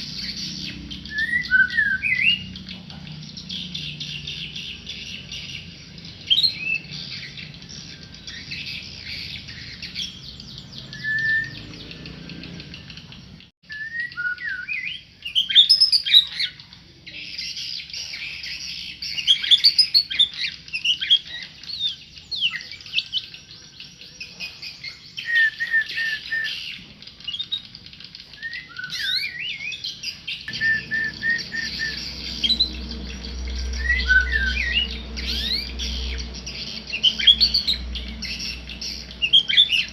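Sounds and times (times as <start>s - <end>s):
songbird singing: 0.0s - 39.9s
low hum: 30.5s - 39.3s.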